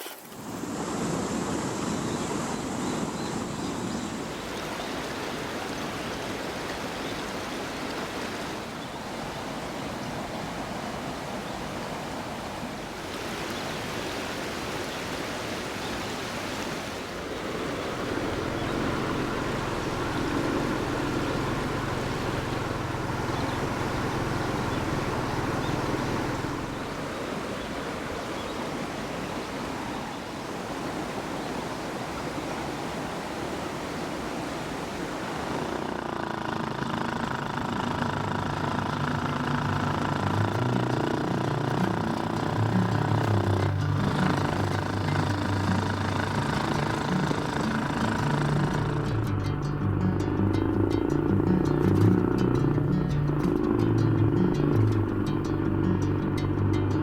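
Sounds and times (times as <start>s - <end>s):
waterfall rushing: 0.0s - 56.7s
low hum: 36.2s - 57.0s.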